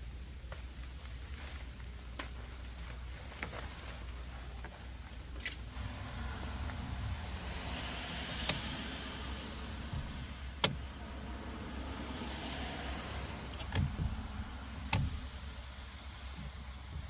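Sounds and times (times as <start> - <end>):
steady low rumble: 0.0 - 17.0
traffic passing: 0.0 - 17.0
tyre hiss: 0.0 - 17.0
sharp clicks or knocks: 10.0 - 10.8, 14.9 - 15.2.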